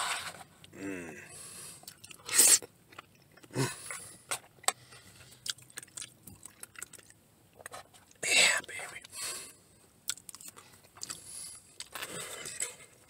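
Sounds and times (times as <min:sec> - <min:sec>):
person chewing: 0:01.8 - 0:09.2, 0:10.0 - 0:13.0.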